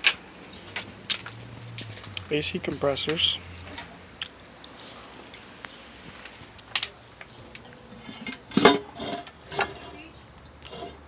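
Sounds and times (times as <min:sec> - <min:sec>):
metal parts clinking and clanking: 0:06.6 - 0:11.0.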